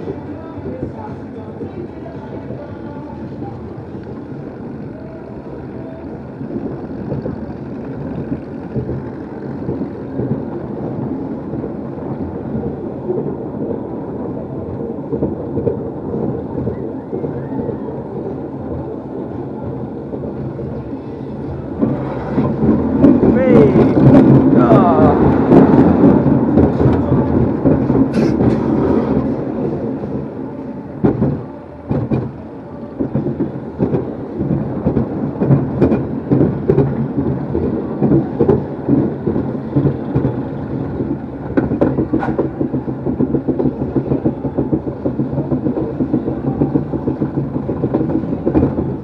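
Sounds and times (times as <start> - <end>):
ride cars rumbling and clattering: 0.0 - 49.0.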